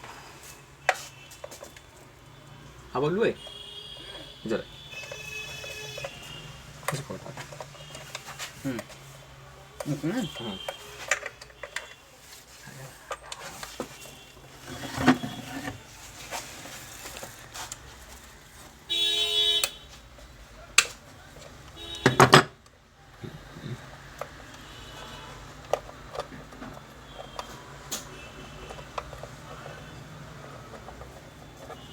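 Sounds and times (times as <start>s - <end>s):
vehicle horn honking: 0.8s - 9.0s, 9.9s - 12.2s, 13.6s - 15.9s, 18.9s - 20.0s, 21.7s - 22.6s, 24.5s - 25.6s, 26.8s - 30.8s, 31.4s - 31.9s.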